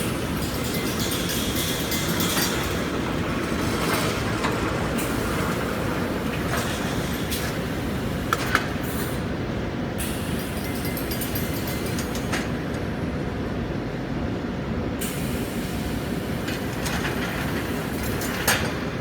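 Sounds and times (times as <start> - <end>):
welding machine rumbling: 0.0 - 9.4.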